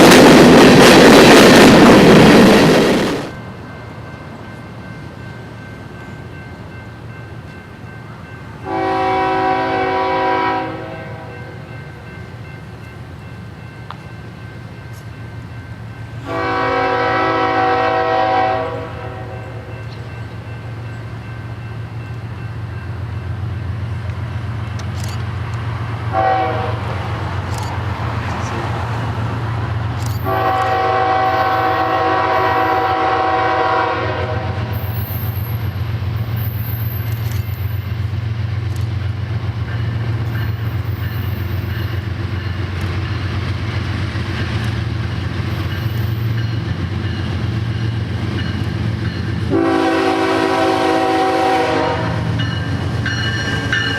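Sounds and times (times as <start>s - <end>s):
train engines rumbling: 0.0s - 53.9s
locomotive air horn blasts: 8.6s - 11.7s, 16.2s - 19.7s, 26.1s - 27.0s, 30.2s - 34.8s, 49.5s - 52.4s.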